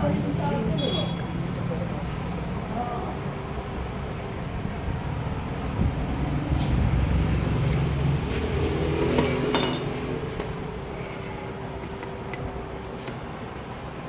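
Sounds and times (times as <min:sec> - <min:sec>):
metal tools clinking: 0:09.2 - 0:10.0.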